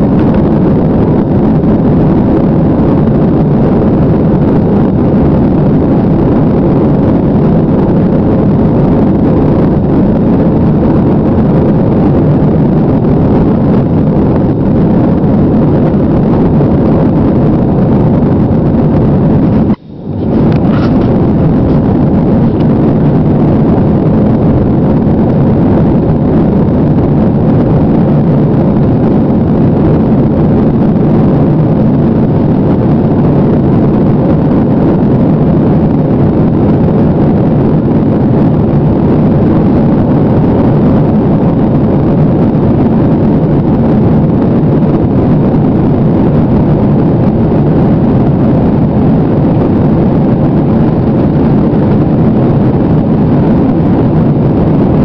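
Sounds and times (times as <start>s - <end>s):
jet engines roaring: 0.0s - 29.3s.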